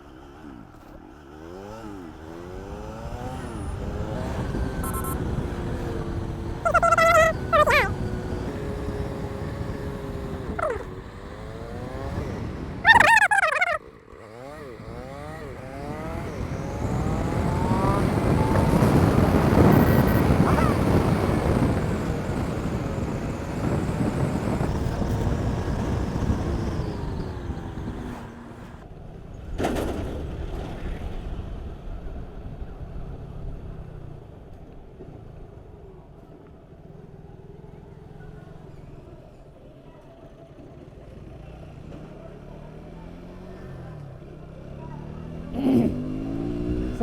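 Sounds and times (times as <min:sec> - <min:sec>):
motorcycle engine: 0:00.0 - 0:31.9, 0:32.8 - 0:47.0
wind noise: 0:16.6 - 0:28.1.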